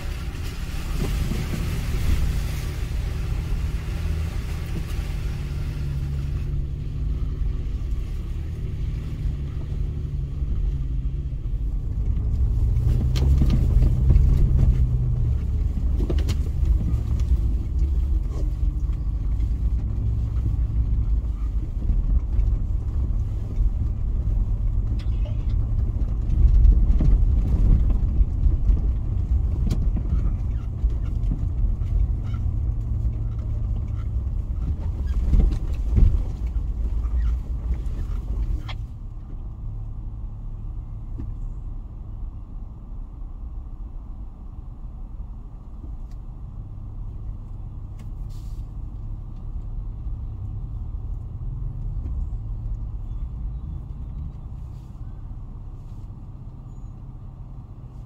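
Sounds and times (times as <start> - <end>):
engine running at low speed: 0.0 - 58.0
sharp knocks over rough ground: 24.8 - 39.4.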